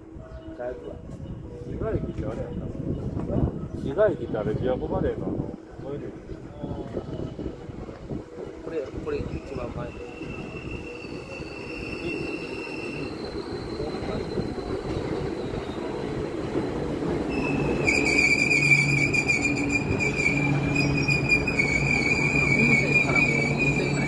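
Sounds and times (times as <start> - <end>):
electric train rumbling: 0.0 - 24.0
high brake squeal: 9.1 - 16.0, 17.3 - 24.0.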